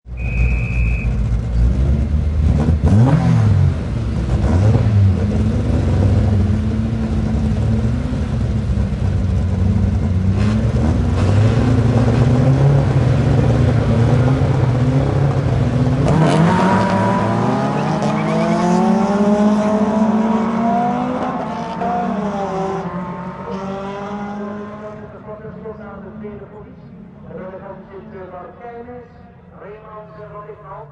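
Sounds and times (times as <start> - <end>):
short high beep: 0.1 - 1.2
race car engines revving: 0.1 - 30.9
race cars accelerating away: 0.4 - 28.2.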